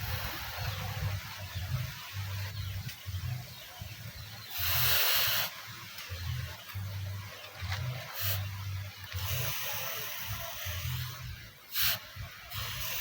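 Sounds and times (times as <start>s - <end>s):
hot blade hissing in quench: 4.5s - 5.5s, 9.2s - 13.0s.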